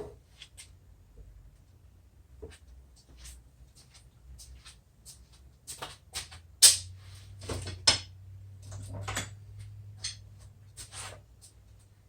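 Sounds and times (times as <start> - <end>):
tools clicking and knocking: 10.0 - 10.3.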